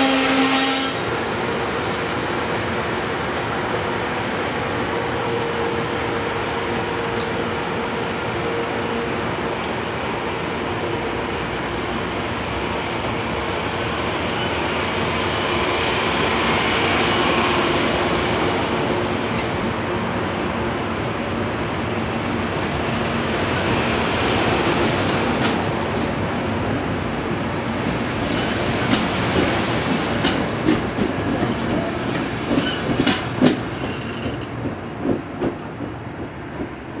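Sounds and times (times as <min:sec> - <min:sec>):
passenger train rolling past: 0:00.0 - 0:37.0
wheels clacking over rail joints: 0:27.8 - 0:37.0.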